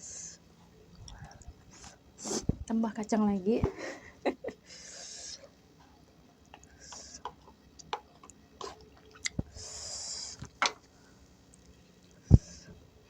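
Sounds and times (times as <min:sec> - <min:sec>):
wet chewing: 0:06.4 - 0:09.6.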